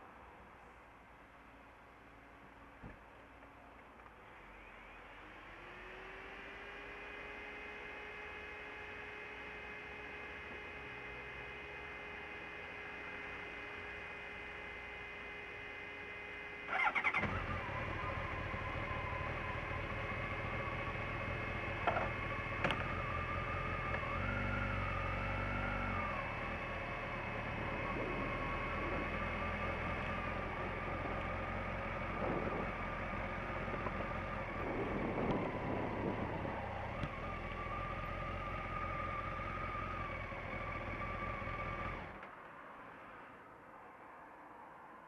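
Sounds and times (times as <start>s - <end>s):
motorcycle engine idling: 16.7s - 24.2s, 25.8s - 42.0s.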